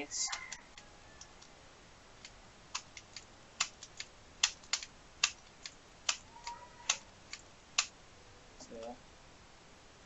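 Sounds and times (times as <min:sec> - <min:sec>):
small hard parts clicking: 0:02.2 - 0:07.9.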